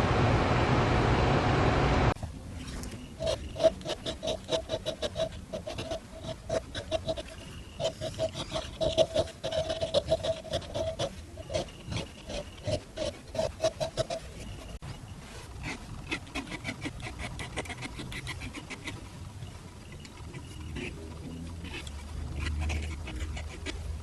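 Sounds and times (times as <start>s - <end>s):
squeaky scraping strokes: 2.6s - 24.0s.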